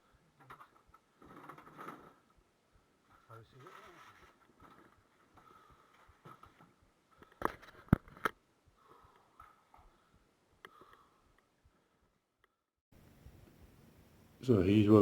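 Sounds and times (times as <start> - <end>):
shuffling and handling noises: 3.0 - 8.3.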